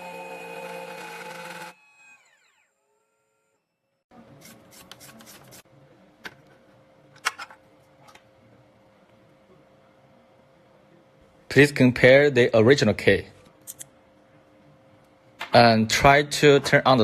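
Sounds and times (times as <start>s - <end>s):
cutter spindle spinning down: 0.0s - 3.6s.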